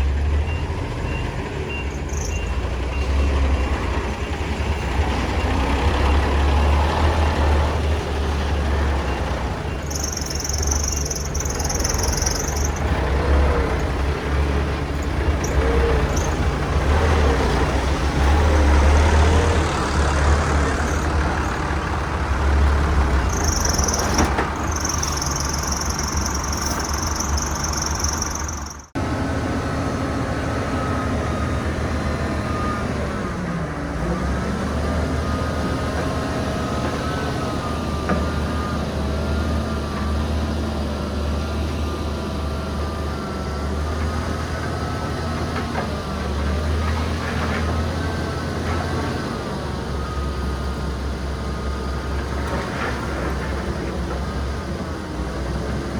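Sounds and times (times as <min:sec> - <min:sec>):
heavy diesel engine drone: 0:00.0 - 0:55.9
engine whine: 0:01.0 - 0:55.9.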